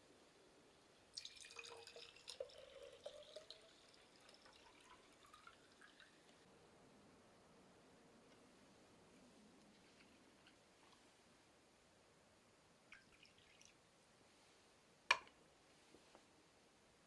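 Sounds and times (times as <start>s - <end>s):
liquid pouring into a cup: 1.1s - 6.4s, 12.9s - 13.8s.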